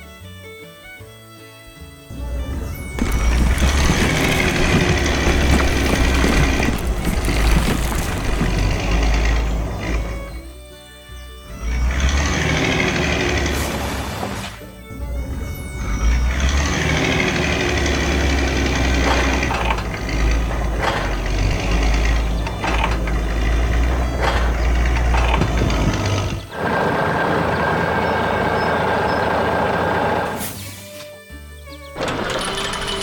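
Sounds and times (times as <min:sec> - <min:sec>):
construction vehicle engine rumbling: 0:02.0 - 0:30.6.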